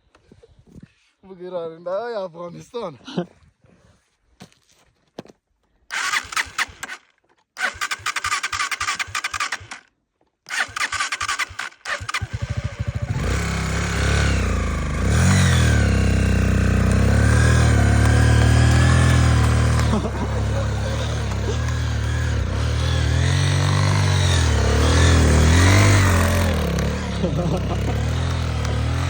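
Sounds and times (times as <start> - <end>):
motorcycle engine revving: 5.9 - 7.0, 7.6 - 9.9, 10.5 - 29.0
motorcycle engine cranking: 5.9 - 9.9, 10.5 - 29.0.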